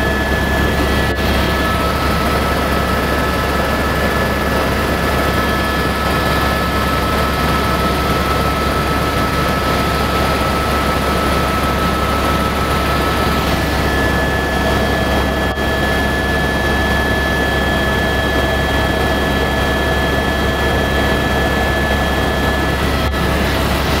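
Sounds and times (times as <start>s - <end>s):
helicopter engine and rotor: 0.0s - 24.0s.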